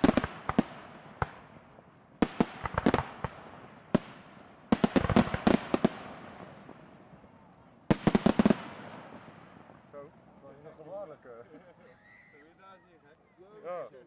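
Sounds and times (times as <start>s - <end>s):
fireworks bangs: 0.0s - 10.4s.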